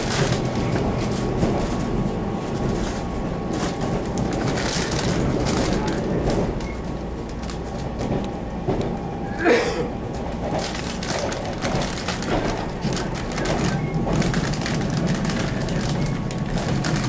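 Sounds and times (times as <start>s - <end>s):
train wheels rumbling on rail: 0.0s - 17.0s
clicks and rattles: 10.4s - 17.0s.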